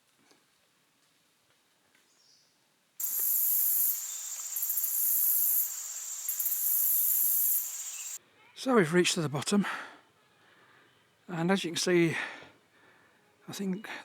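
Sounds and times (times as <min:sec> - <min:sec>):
high-pitched insect chorus buzzing: 0:03.0 - 0:08.2.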